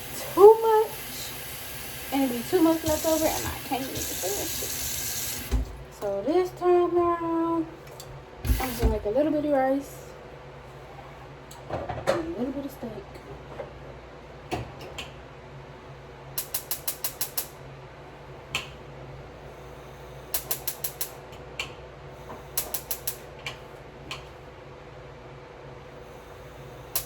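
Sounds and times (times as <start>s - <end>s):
gas stove igniter clicking: 16.4s - 17.5s, 20.3s - 21.8s, 22.5s - 24.3s.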